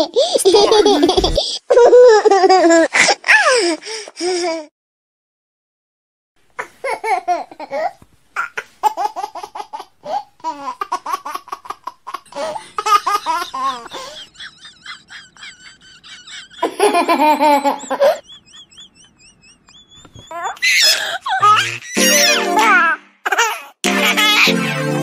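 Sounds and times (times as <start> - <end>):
high-pitched human laughter: 0.2 - 3.6, 12.3 - 22.7.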